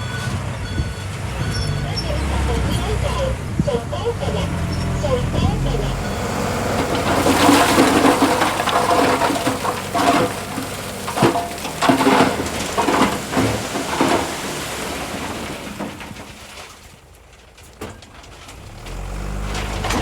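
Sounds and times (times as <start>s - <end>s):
stone and soil sliding: 4.2s - 16.7s, 18.4s - 20.0s
stones clattering: 6.9s - 16.5s.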